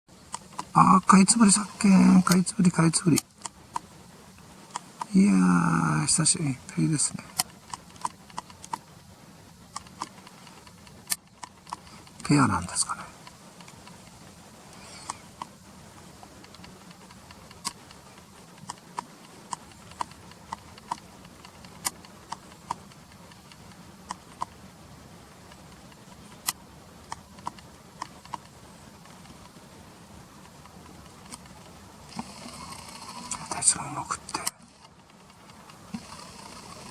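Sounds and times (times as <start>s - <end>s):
sharp clicks: 0.1s - 5.3s, 6.0s - 36.9s
faint low hum: 0.1s - 36.9s.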